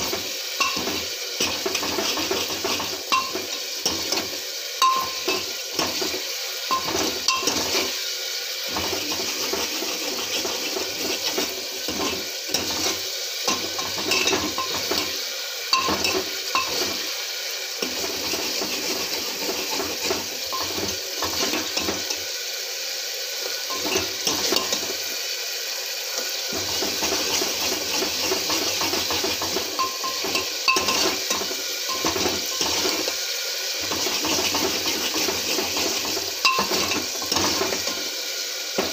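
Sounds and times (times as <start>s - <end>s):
metal spoon scraping a pan: 0.0s - 8.0s, 8.7s - 17.1s, 17.8s - 22.2s, 23.7s - 25.1s, 26.2s - 33.2s, 33.8s - 38.1s
vegetables sizzling in a pan: 0.0s - 38.9s.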